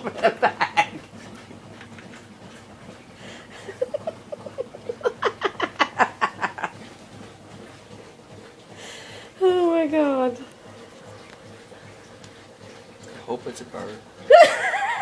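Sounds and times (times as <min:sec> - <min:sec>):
person laughing: 0:03.5 - 0:06.8, 0:14.3 - 0:15.0.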